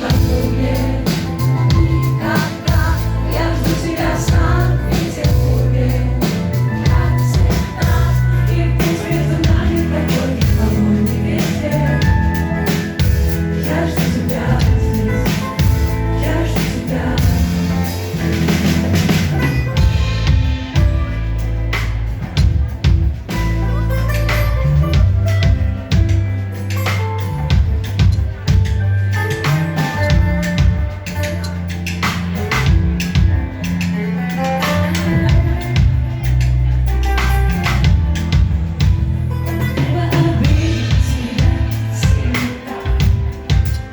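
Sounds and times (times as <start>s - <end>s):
person singing: 0.0s - 18.1s, 39.4s - 43.9s
deep bass line: 0.0s - 43.9s
drum kit beat: 0.0s - 43.9s
guitar: 0.0s - 43.9s
live band music: 0.0s - 43.9s.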